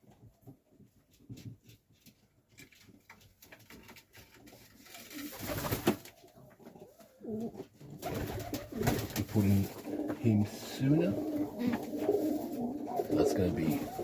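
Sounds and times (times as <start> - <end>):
pigeons cooing: 6.6 - 9.0, 9.7 - 14.0.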